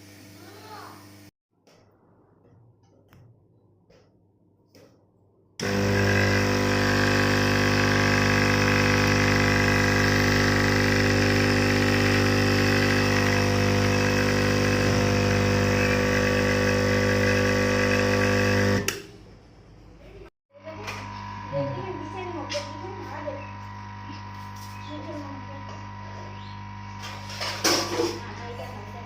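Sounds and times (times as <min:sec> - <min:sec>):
air pump buzzing hum: 0:05.6 - 0:19.0, 0:20.6 - 0:29.0.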